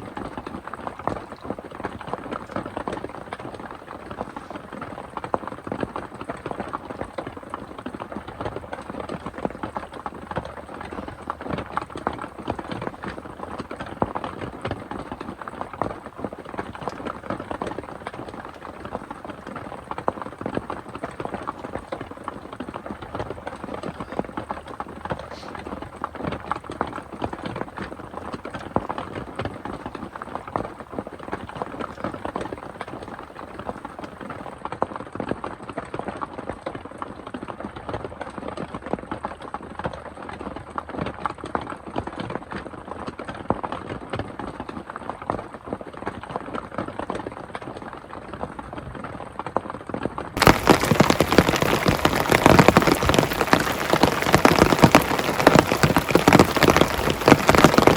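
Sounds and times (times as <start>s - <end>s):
heavy rain pattering: 0.0s - 34.5s, 50.4s - 57.9s.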